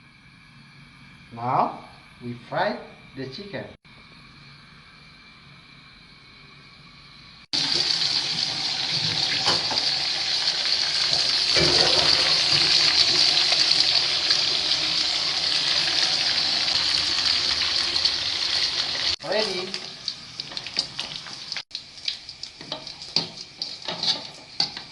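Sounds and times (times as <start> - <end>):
chicken deep-frying in oil: 7.5 - 24.9.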